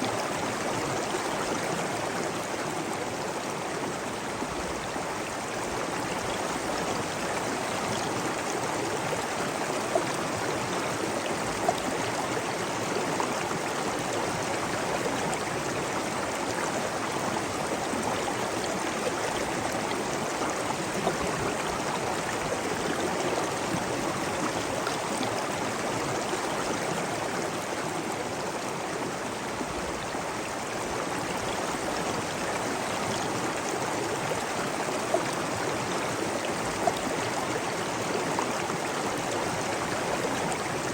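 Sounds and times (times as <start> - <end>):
running water rushing: 0.0 - 40.9.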